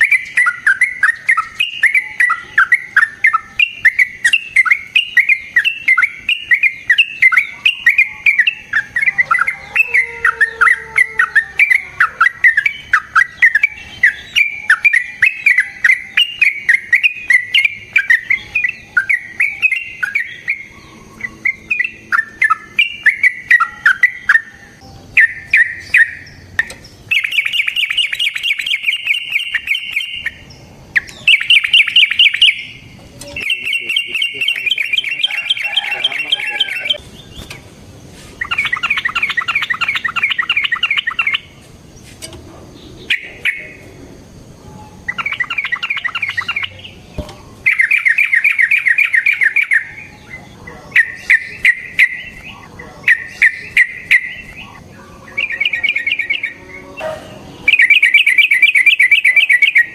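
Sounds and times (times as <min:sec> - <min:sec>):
bulbul harsh chattering trill: 0:00.0 - 0:37.0.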